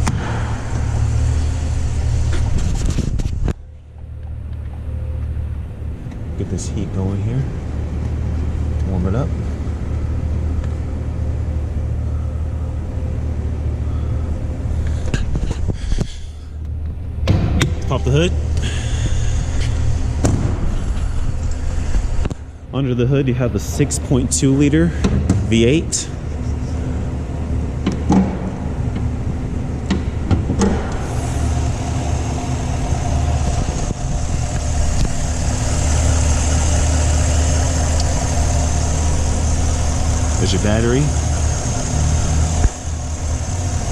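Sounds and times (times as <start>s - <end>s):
car engine idling: 0.0s - 43.9s
heater fan blowing: 0.0s - 43.9s
sharp clicks and knocks: 29.8s - 31.0s.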